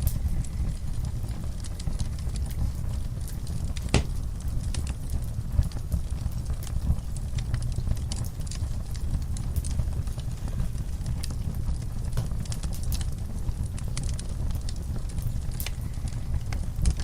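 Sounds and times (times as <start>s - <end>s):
low steady rumble: 0.0s - 17.0s
wood fire crackling and popping: 0.0s - 17.0s.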